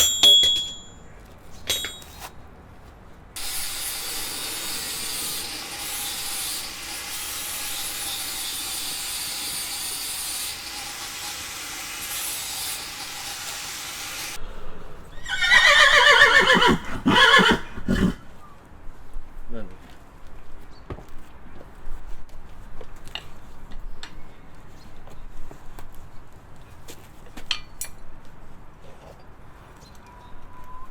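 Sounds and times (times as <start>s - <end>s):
horse neighing: 15.1s - 18.3s.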